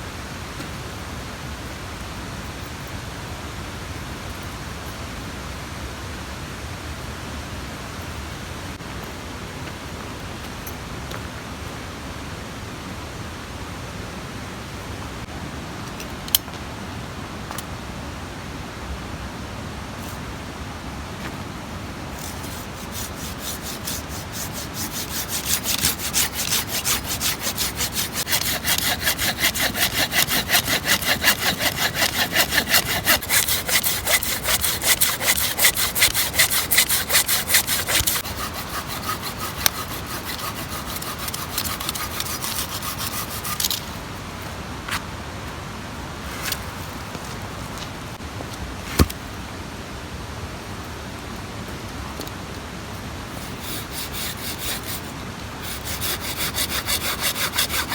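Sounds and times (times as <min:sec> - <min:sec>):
hand saw cutting wood: 0:22.1 - 0:44.0, 0:53.3 - 0:57.9.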